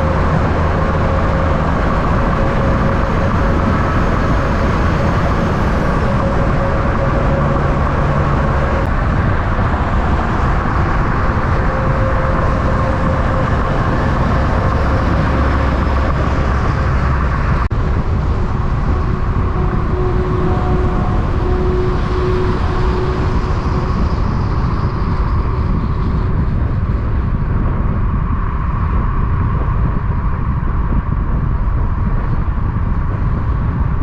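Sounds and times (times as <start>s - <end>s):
diesel truck engine rumbling: 0.0s - 34.0s.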